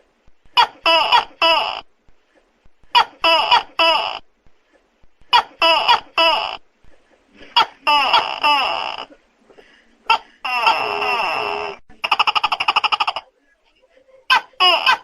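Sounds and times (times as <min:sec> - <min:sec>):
gecko calling: 0:07.5 - 0:09.2, 0:10.1 - 0:13.3.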